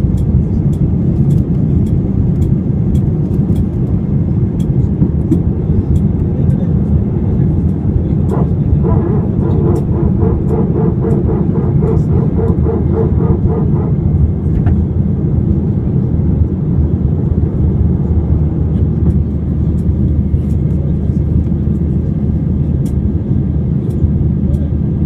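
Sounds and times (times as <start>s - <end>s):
airplane cabin engine rumble: 0.0s - 25.0s
rhythmic pulsing: 7.5s - 15.3s.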